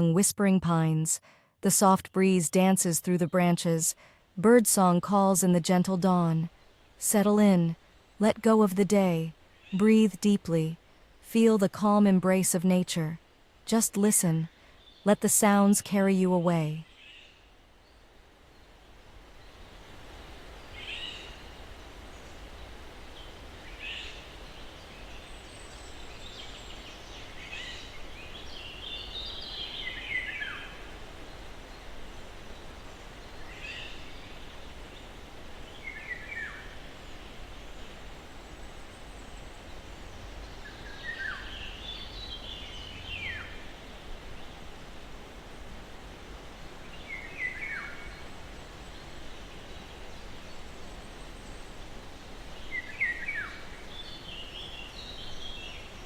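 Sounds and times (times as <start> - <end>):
breeze through pine trees: 0.0 - 56.0.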